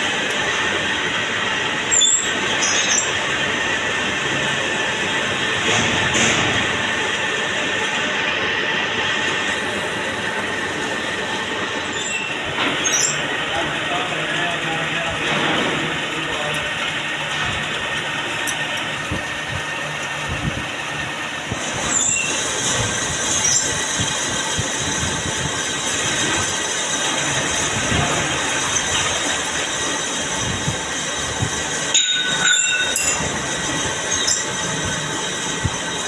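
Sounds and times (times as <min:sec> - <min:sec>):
lathe cutting metal: 0:00.0 - 0:36.0
high tool squeals: 0:01.9 - 0:03.2, 0:11.8 - 0:13.3, 0:21.8 - 0:22.5, 0:23.3 - 0:23.8.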